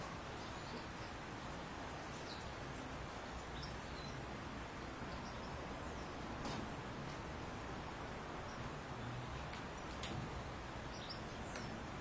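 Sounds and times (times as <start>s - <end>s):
outdoor background hiss: 0.0s - 12.0s
faint high bird chirps: 2.0s - 4.3s, 5.0s - 6.2s, 10.3s - 12.0s.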